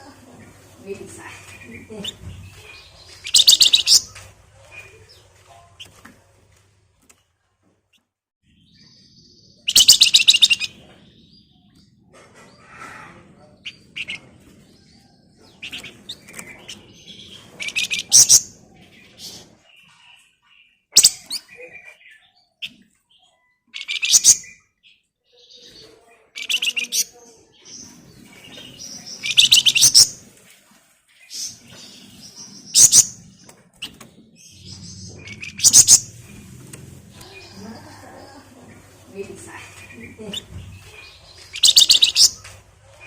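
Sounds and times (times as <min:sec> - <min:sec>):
soft bird chirps: 0:00.1 - 0:06.0, 0:31.2 - 0:43.0
songbird rattling trills: 0:03.2 - 0:04.1, 0:34.8 - 0:36.4, 0:39.8 - 0:42.4.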